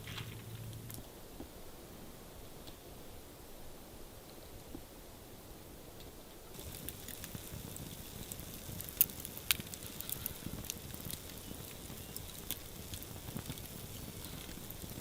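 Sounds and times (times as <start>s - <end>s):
campfire crackling and popping: 0.0s - 1.6s, 6.0s - 15.0s.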